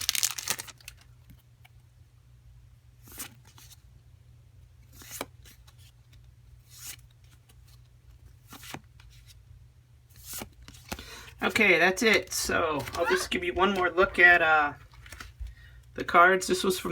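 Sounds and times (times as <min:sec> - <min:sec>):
cards and foil wrapper rustling: 0:00.0 - 0:01.1, 0:10.2 - 0:15.8.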